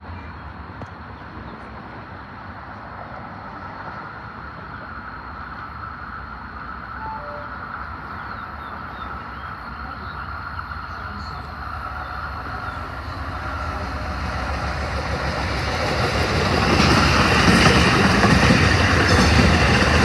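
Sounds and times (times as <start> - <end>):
passing train rumble: 0.0 - 20.0
faint short chirps: 7.0 - 7.6.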